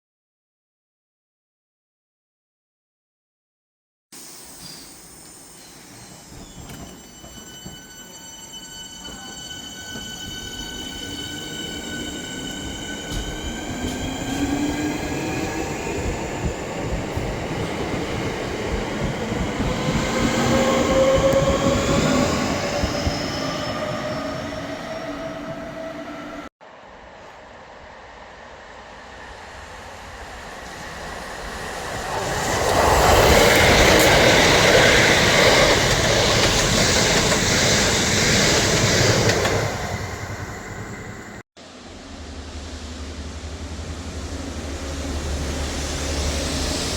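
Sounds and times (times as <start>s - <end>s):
train wheel and rail noise: 4.2s - 46.9s
train motor whine: 5.6s - 17.4s, 19.0s - 26.5s.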